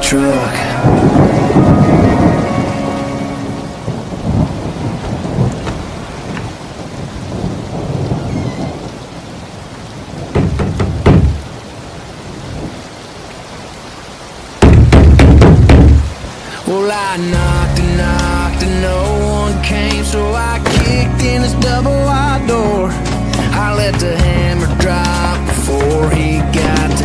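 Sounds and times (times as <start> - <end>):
steady rain: 0.0 - 27.0
rolling thunder: 0.5 - 11.6
loud crack of thunder: 0.7 - 9.0.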